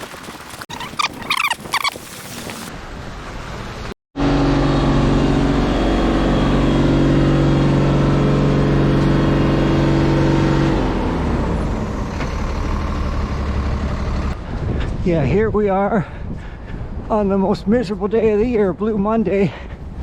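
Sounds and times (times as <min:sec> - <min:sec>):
vehicle engine droning: 0:02.7 - 0:14.8
wind noise on microphone: 0:14.4 - 0:20.0.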